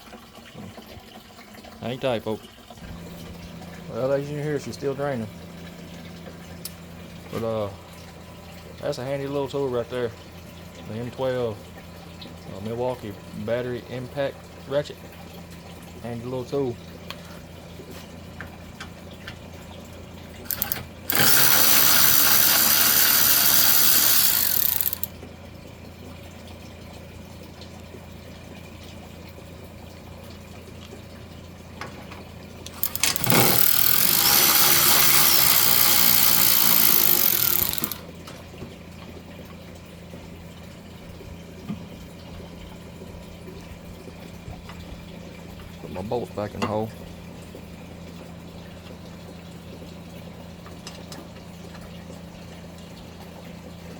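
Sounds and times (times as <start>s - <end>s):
impact ratchet whirring: 20.5s - 25.1s, 32.7s - 38.0s.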